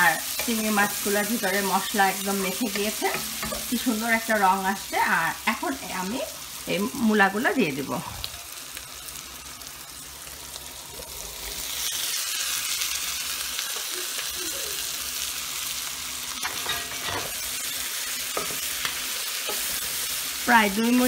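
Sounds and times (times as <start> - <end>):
hot oil sizzling in a pot: 0.0 - 21.0.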